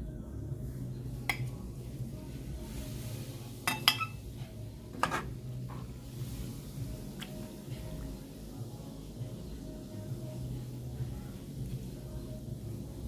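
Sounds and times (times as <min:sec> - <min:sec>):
utensil clinking against pot: 0:03.7 - 0:04.2.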